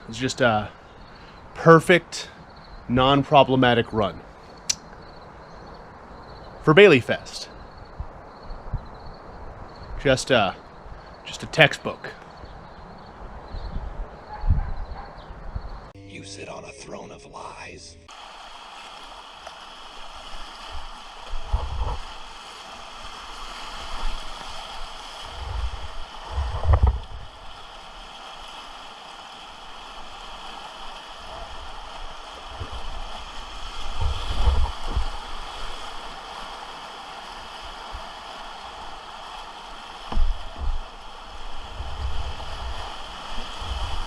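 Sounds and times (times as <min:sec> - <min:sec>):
low thumps buffeting camera: 0:13.5 - 0:15.9, 0:21.4 - 0:22.1, 0:25.3 - 0:27.3, 0:33.8 - 0:35.2, 0:40.1 - 0:40.9, 0:41.7 - 0:42.9
whitewater rapids rushing: 0:27.4 - 0:44.0.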